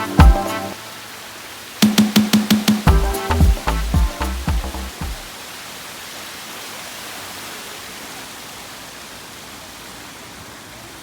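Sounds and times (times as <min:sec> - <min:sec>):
steady rushing hiss: 0:00.0 - 0:06.7.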